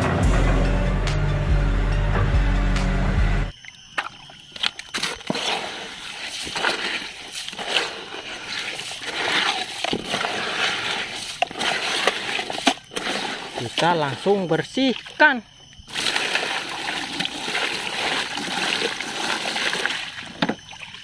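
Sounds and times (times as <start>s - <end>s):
music: 0.0s - 3.5s
water sloshing and splashing: 3.5s - 21.0s.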